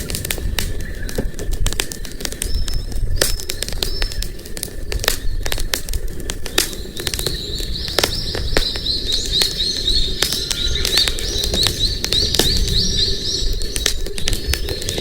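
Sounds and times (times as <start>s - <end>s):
campfire crackling and popping: 0.0s - 15.0s
bird chirping: 6.7s - 15.0s.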